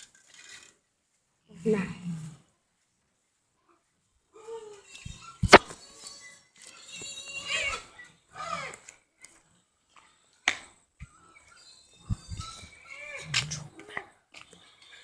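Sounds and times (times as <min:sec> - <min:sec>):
animal wavering cries: 0:07.0 - 0:08.8, 0:11.1 - 0:14.1.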